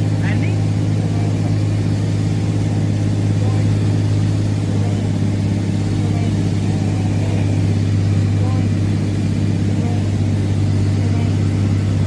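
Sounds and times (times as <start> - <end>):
light aircraft engine droning: 0.0 - 12.0.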